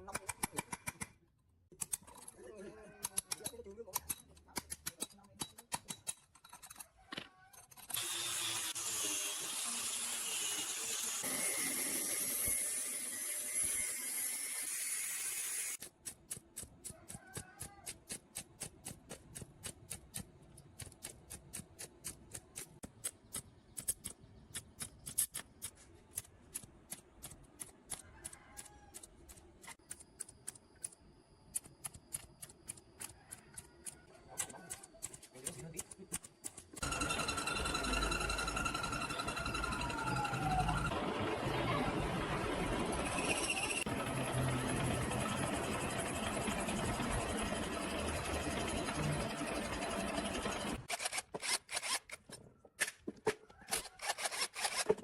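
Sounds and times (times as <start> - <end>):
power tool running: 8.0 - 15.8, 36.8 - 39.9, 42.2 - 52.1.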